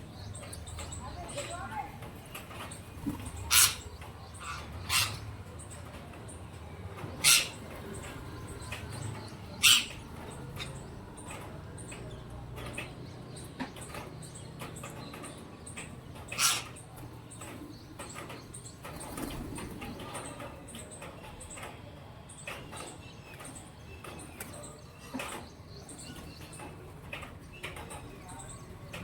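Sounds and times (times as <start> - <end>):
pigeons cooing: 2.2 - 12.0, 15.0 - 21.1.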